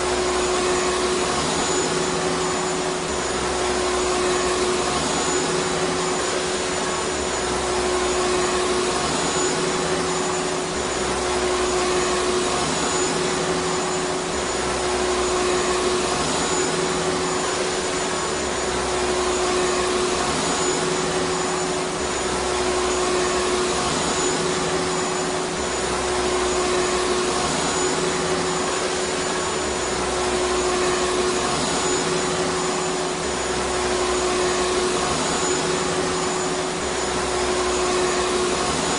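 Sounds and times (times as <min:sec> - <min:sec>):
vacuum cleaner motor running: 0:00.0 - 0:38.9.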